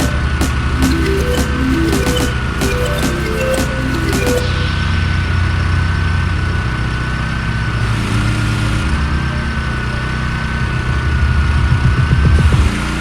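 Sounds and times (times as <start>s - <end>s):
high whine: 0.0s - 7.5s.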